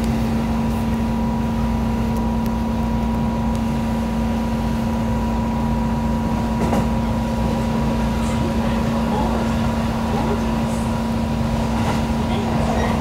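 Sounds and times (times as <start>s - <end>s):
electric train running: 2.6s - 13.0s.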